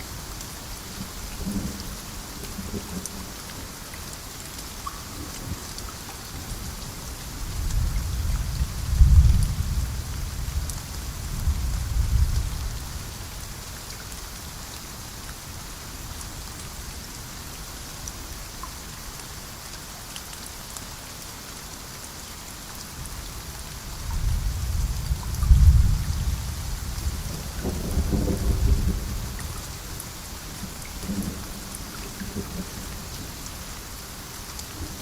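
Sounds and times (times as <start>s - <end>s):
heavy rain falling: 0.0s - 35.0s
thunder rumbling: 24.2s - 30.0s.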